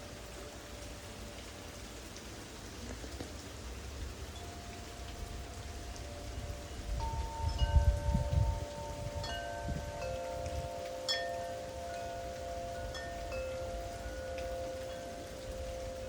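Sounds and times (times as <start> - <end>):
wind chimes ringing: 4.3 - 16.0
wind buffeting microphone: 5.2 - 11.4.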